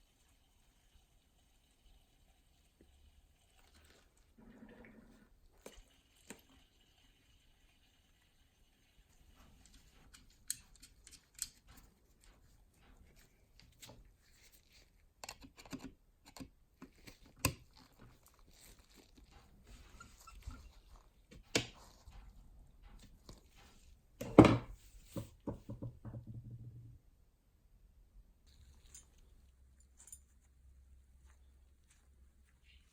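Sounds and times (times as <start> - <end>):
small parts clicking and tapping: 9.5 - 12.5, 15.2 - 19.4.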